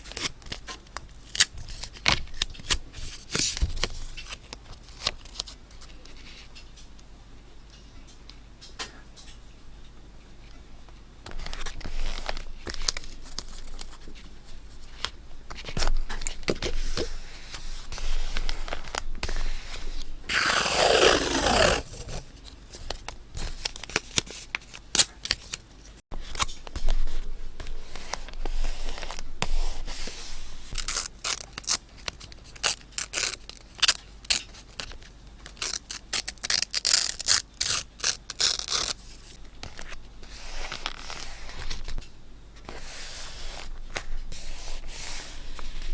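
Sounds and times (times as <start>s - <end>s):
paper scraped and rustled: 16.7s - 22.4s, 42.6s - 45.9s
crisp scratching strokes: 20.3s - 22.3s
paper tearing: 20.3s - 22.3s.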